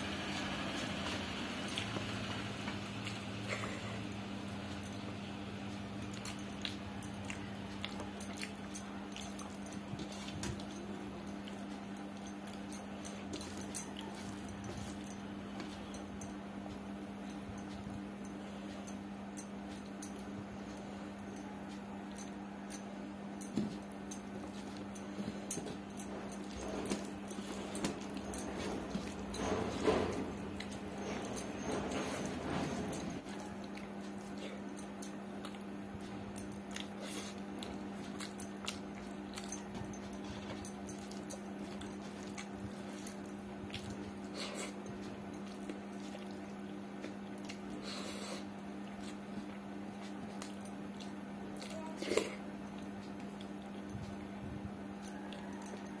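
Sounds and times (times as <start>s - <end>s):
wet chewing: 26.4s - 54.2s.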